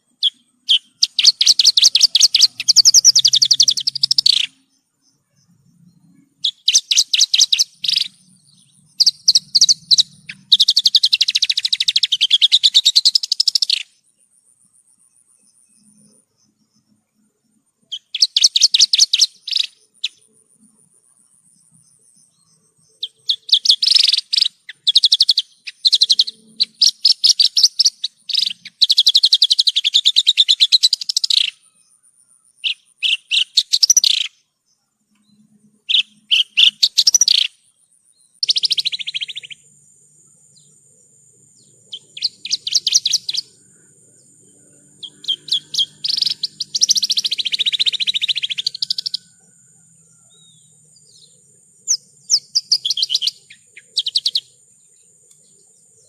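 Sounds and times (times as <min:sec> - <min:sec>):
bird singing buzzy trills: 0:00.0 - 0:14.3, 0:14.9 - 0:56.0.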